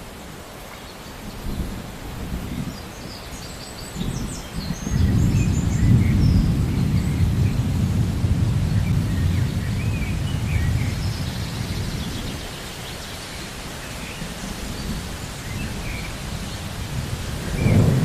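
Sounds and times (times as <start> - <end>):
steady rain: 0.0 - 18.0
low rumble of thunder: 4.0 - 12.9, 13.9 - 18.0.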